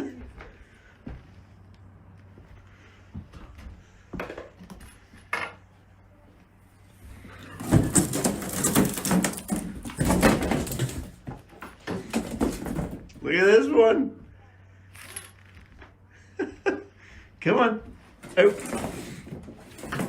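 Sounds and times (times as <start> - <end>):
clatter of hard knocks and scraping: 7.0 - 13.2, 18.0 - 20.0.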